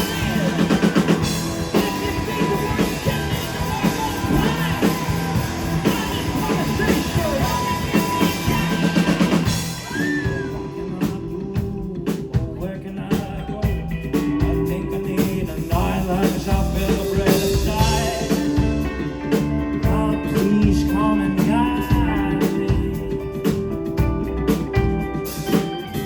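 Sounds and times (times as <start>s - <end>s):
drum hits: 0.0s - 12.7s
rock band playing live: 0.0s - 26.0s.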